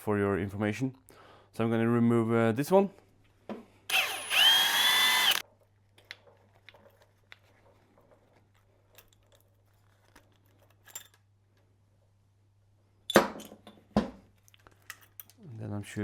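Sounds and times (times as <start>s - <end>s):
cordless power tool spinning: 3.9s - 5.4s.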